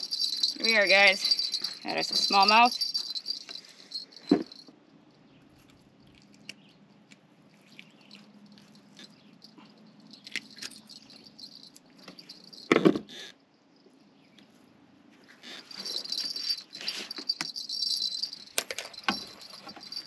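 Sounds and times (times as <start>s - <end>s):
small handling clicks and knocks: 15.6s - 20.0s.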